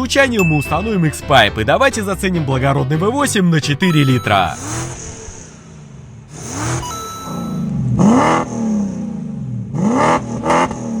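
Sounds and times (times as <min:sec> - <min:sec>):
faint chime-like tone: 0:00.4 - 0:01.8, 0:03.8 - 0:05.8, 0:06.8 - 0:07.9
car engine idling and revving: 0:04.6 - 0:11.0.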